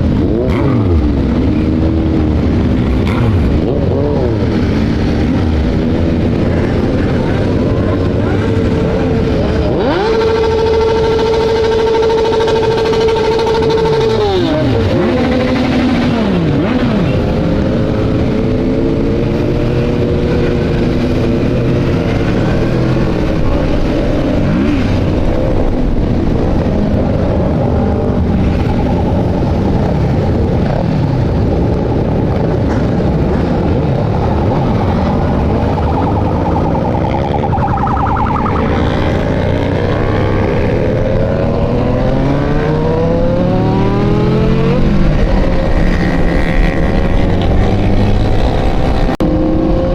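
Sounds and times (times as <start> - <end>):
motorcycle engines passing: 0.0 - 49.9.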